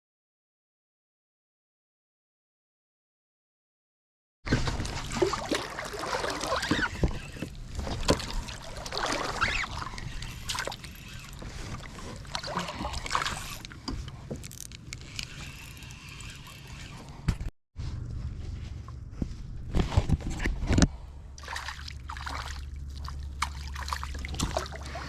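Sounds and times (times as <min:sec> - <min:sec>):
water splashing against kayak: 0:04.5 - 0:14.4, 0:21.4 - 0:25.0.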